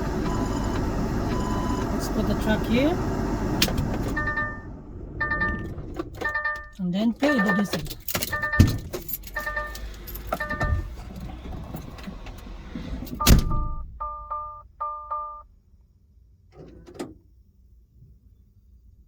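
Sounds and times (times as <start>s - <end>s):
truck engine rumble: 0.0s - 14.6s
electronic warning chime: 0.2s - 1.9s, 4.2s - 8.8s, 9.4s - 10.9s.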